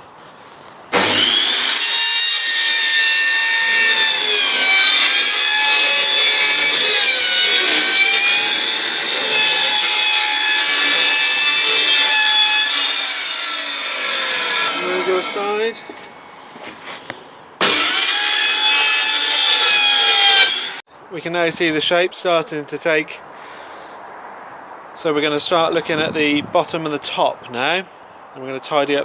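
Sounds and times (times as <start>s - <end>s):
electric saw cutting wood: 0.9s - 16.0s, 17.6s - 20.8s.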